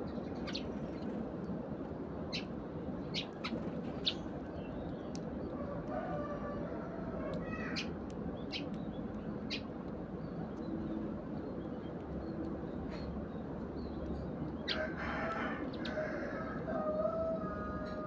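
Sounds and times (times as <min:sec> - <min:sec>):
sparrows chirping: 0:00.0 - 0:05.9, 0:07.4 - 0:16.0
steady background noise: 0:00.0 - 0:18.0.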